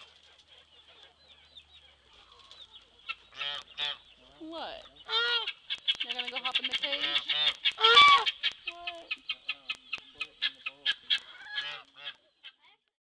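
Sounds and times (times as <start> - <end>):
poultry calling: 0.0 - 12.8
geese honking: 2.1 - 12.3.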